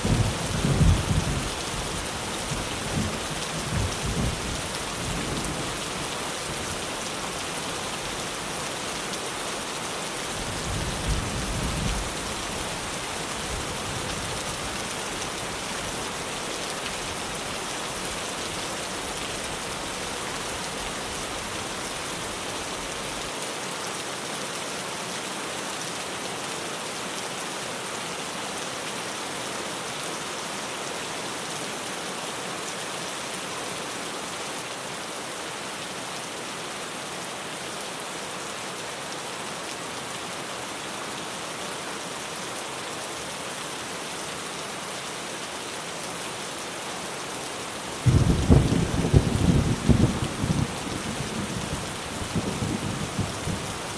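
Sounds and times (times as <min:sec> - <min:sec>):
low rumble of thunder: 0:00.0 - 0:01.5, 0:48.1 - 0:53.8
rain on a tin roof: 0:00.0 - 0:53.9.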